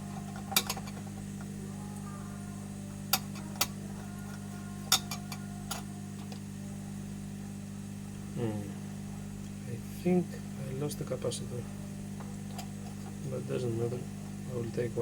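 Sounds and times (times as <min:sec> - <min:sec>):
low electrical hum: 0:00.0 - 0:15.0
metal tools clicking on bench: 0:04.3 - 0:05.9.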